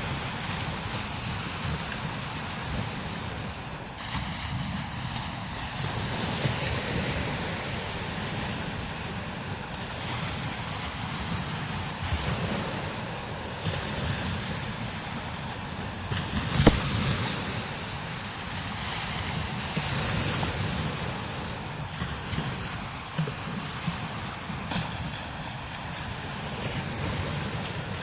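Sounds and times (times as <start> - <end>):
wind gusting across microphone: 0.0 - 28.0
sharp thump: 16.6 - 17.2.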